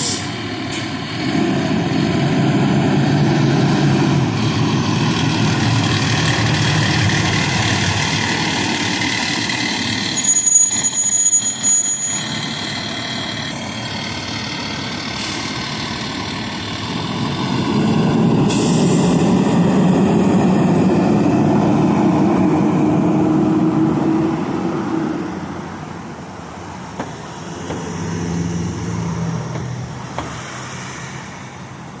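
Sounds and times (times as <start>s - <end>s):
air brake hiss: 0.0s - 1.0s, 15.2s - 15.7s, 18.4s - 19.3s, 30.3s - 31.6s
fire truck diesel engines: 0.0s - 32.0s.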